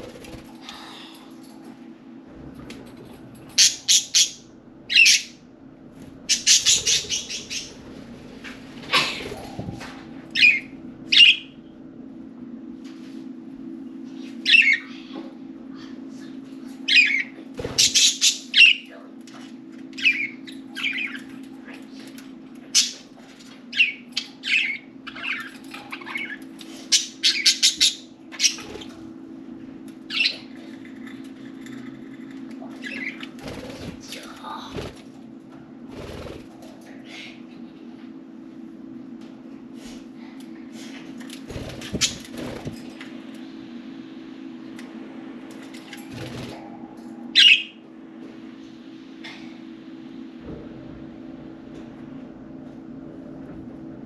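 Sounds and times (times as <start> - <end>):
steady low hum: 0.0 - 54.0
budgerigars chirping and squawking: 3.6 - 5.4, 6.3 - 7.8, 10.4 - 11.5, 16.9 - 18.9, 20.0 - 21.3, 22.8 - 23.0, 23.7 - 28.9, 47.4 - 47.7.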